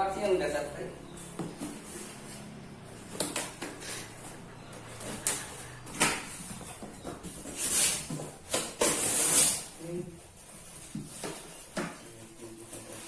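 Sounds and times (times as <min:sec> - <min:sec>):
cardboard packaging rustling: 0:01.6 - 0:11.8.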